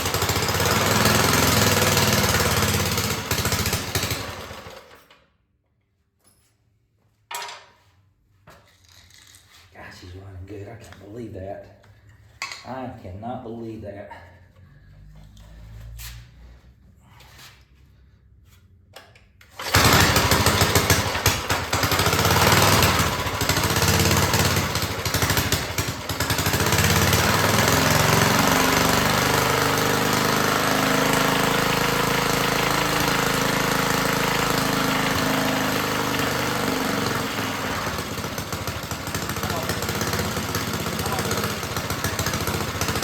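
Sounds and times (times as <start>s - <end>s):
small engine starting and running: 0.0s - 5.3s, 19.5s - 43.0s.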